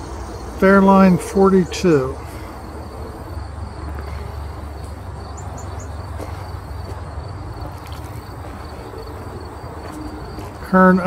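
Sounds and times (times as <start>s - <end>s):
crickets trilling: 0.0s - 11.0s
bird chirping: 4.0s - 6.9s.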